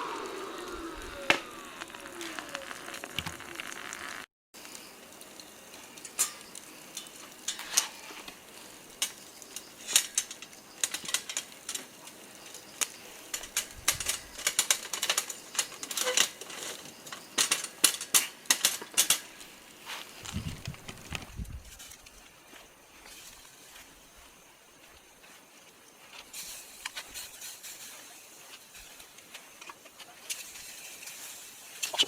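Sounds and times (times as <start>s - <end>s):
clicks of small hard objects: 0.5s - 22.2s.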